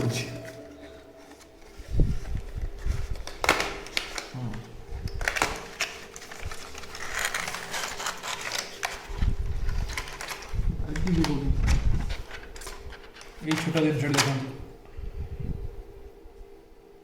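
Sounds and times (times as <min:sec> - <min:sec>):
packaging rustling: 0:00.0 - 0:13.8.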